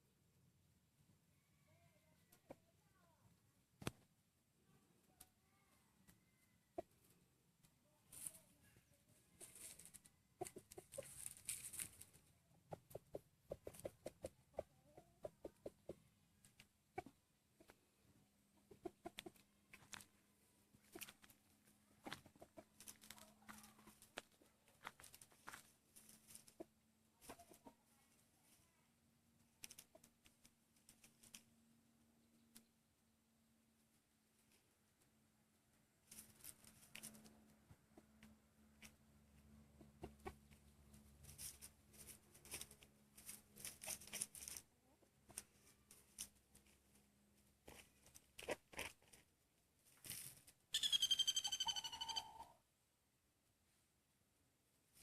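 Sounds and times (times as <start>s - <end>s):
faint rustling: 8.1s - 12.2s.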